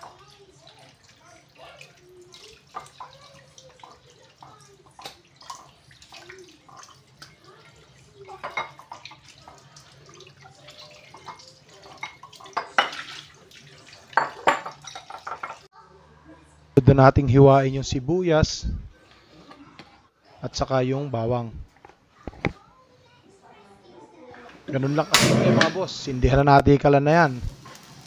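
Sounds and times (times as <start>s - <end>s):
tap water running into bowl: 0.0s - 15.6s
splashing and wet slapping: 4.8s - 7.6s.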